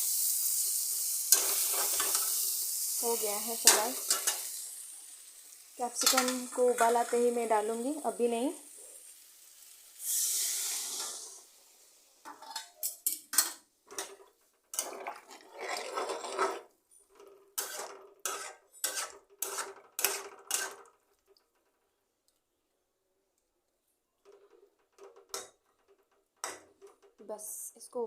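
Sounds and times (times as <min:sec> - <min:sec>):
brief hiss: 0:10.0 - 0:11.5
metal spoon scraping a pot: 0:12.3 - 0:21.0.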